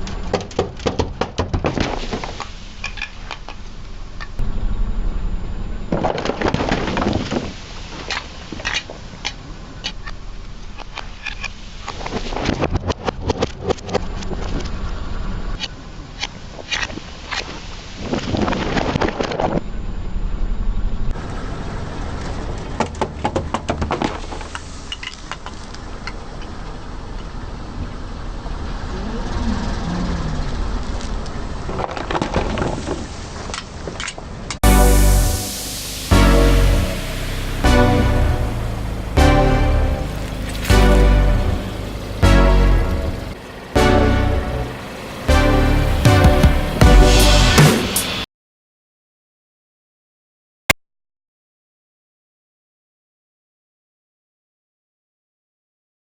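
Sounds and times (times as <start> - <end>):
low engine rumble: 2.6 - 6.5, 25.4 - 31.7, 34.6 - 48.2.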